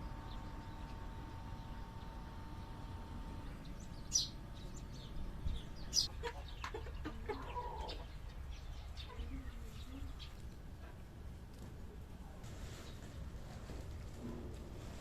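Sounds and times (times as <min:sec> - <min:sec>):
chickens clucking: 0:05.6 - 0:10.2.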